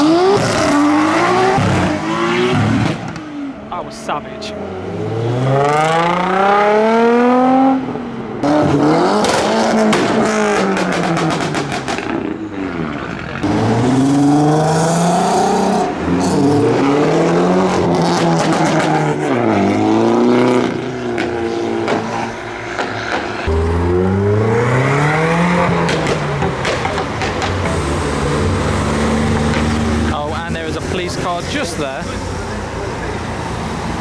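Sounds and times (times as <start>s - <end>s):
car engines revving hard: 0.0s - 34.0s
exhaust pops and bangs: 8.5s - 12.3s, 17.7s - 19.2s, 25.6s - 28.1s, 29.2s - 30.2s.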